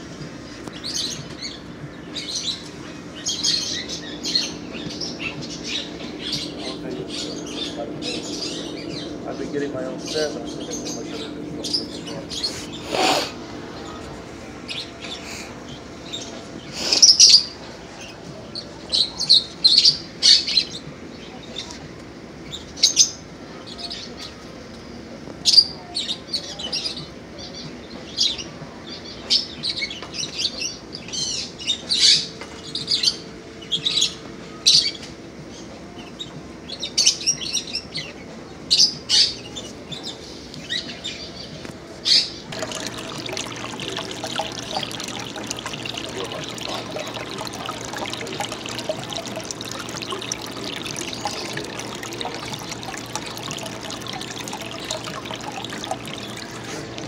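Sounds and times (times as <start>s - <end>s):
caged birds chirping: 42.2s - 57.0s.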